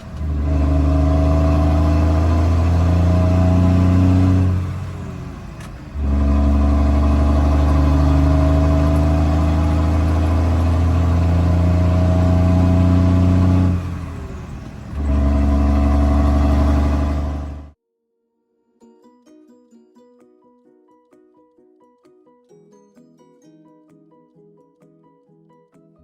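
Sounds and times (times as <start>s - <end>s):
diesel truck engine pulling hard: 0.0s - 17.8s.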